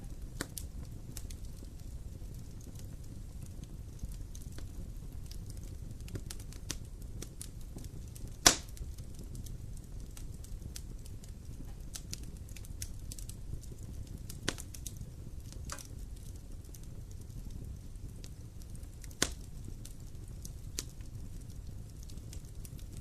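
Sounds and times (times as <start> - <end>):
campfire crackling: 0.0 - 23.0
loud pop of campfire: 8.3 - 8.9, 15.6 - 15.9, 19.1 - 19.4.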